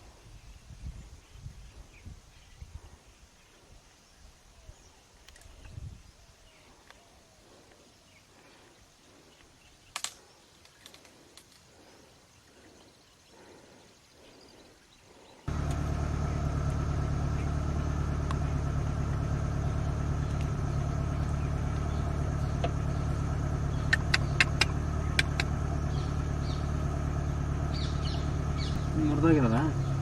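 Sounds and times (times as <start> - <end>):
sharp clicks: 9.9 - 11.6, 23.8 - 25.6
vehicle engine running: 15.5 - 30.0.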